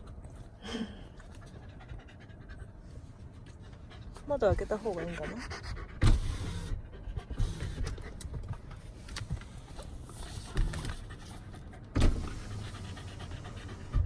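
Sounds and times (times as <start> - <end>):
dog panting: 0.0 - 14.0
thump: 6.0 - 6.4, 11.9 - 12.6.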